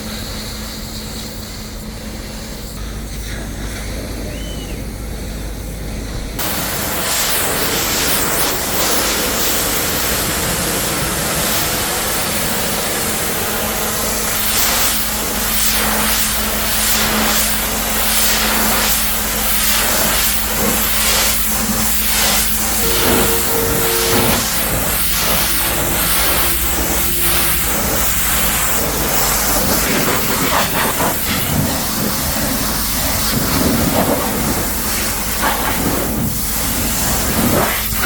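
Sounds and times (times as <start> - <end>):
pressure washer spraying water: 6.4 - 38.0
low hum: 22.6 - 30.4.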